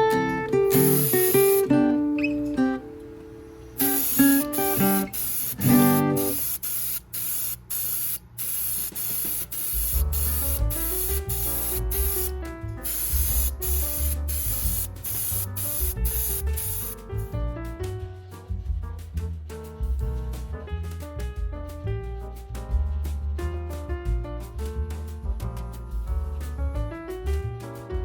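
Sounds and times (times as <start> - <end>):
acoustic guitar music: 0.0 - 6.5
spray paint hissing: 0.5 - 1.8, 3.7 - 17.3
bass line: 9.8 - 28.0.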